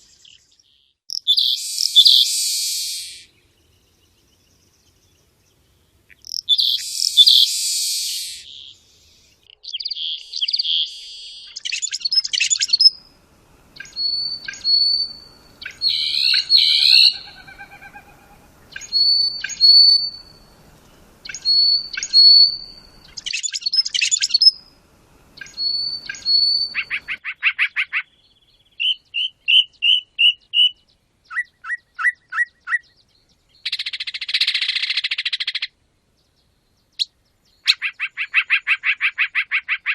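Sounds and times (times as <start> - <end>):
evenly spaced short bird notes: 0.2 - 3.3, 6.1 - 13.0, 13.8 - 20.6, 21.2 - 24.6
rapid bird trill: 0.2 - 3.3, 6.1 - 8.8, 9.4 - 13.1, 13.8 - 24.7, 25.4 - 33.0
harsh buzzy bird call: 1.2 - 3.3, 6.1 - 8.8, 13.8 - 20.6
whistled bird phrase: 1.3 - 3.3, 6.5 - 8.7, 13.8 - 20.5, 21.3 - 24.6, 25.4 - 27.0.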